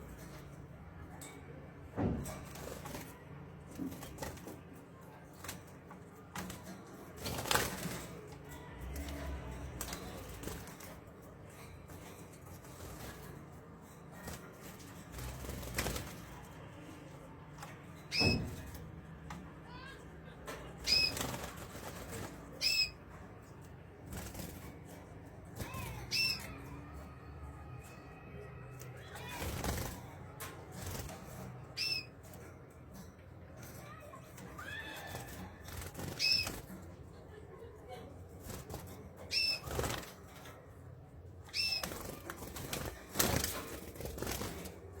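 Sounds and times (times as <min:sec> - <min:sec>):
canary chirping: 0:18.0 - 0:18.6, 0:20.7 - 0:23.8, 0:25.6 - 0:29.9, 0:31.6 - 0:32.3, 0:33.8 - 0:37.6, 0:39.1 - 0:40.2, 0:41.4 - 0:44.5.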